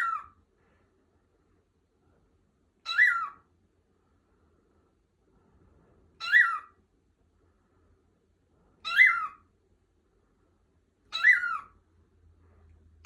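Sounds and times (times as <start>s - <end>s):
cockatiel whistling call: 2.9s - 3.4s, 6.2s - 6.7s, 8.8s - 9.4s, 11.1s - 11.7s.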